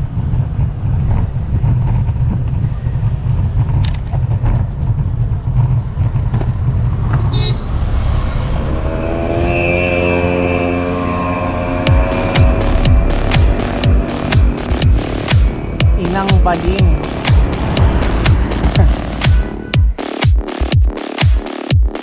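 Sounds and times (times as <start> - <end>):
wind buffeting microphone: 0.0 - 9.2
road noise: 0.0 - 21.6
background music held notes: 7.4 - 22.0.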